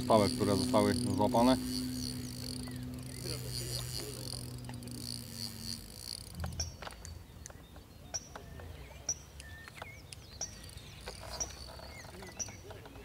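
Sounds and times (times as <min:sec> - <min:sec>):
low outdoor rumble: 0:00.0 - 0:07.7
birds chirping: 0:00.0 - 0:13.0.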